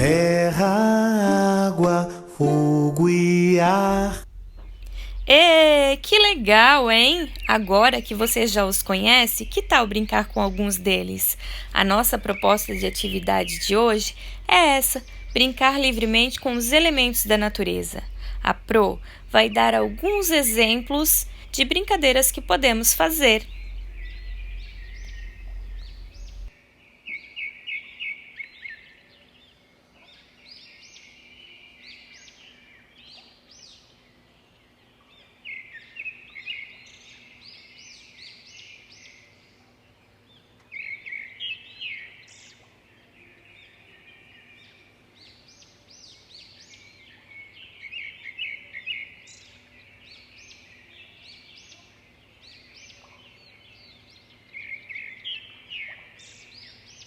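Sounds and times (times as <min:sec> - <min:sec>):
low rumble: 0:02.9 - 0:26.5
small birds chirping: 0:04.2 - 0:26.5.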